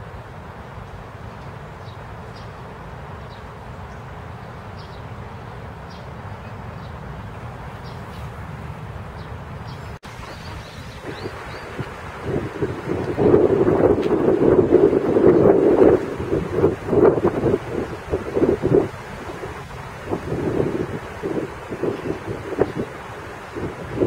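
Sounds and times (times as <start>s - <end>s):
rain on paving and foliage: 10.0s - 24.0s.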